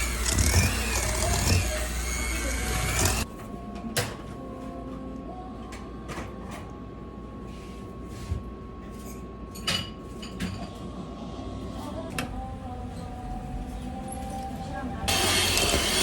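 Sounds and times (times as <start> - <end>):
dishes and utensils clinking: 8.9 - 10.9.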